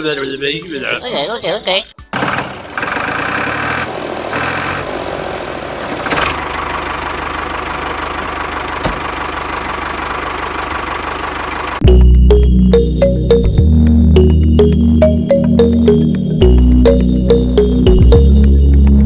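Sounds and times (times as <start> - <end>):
engine running steadily: 2.2 - 15.0.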